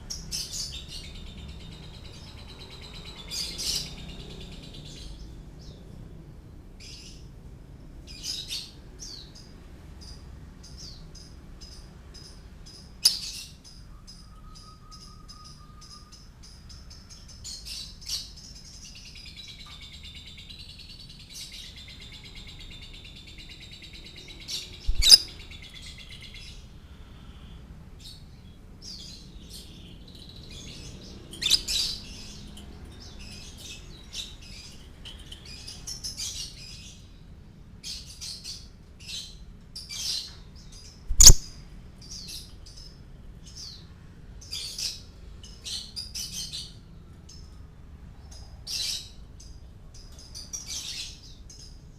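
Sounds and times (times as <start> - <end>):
lovebird trilling and chirping: 24.4 - 26.3, 31.3 - 32.6, 41.1 - 41.5.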